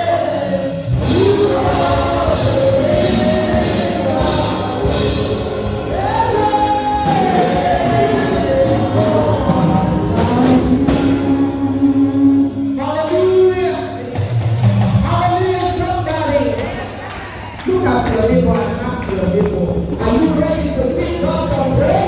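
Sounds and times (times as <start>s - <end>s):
person singing: 0.0s - 14.4s
band with drum kit: 0.0s - 22.0s.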